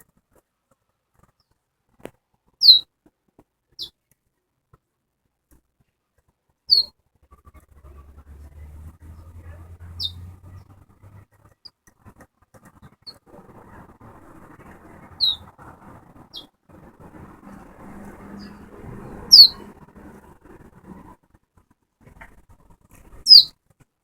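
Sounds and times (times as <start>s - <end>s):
finch chip calls: 2.6s - 2.8s, 6.7s - 6.9s, 10.0s - 10.2s, 15.2s - 15.5s, 19.3s - 19.7s, 23.2s - 23.5s.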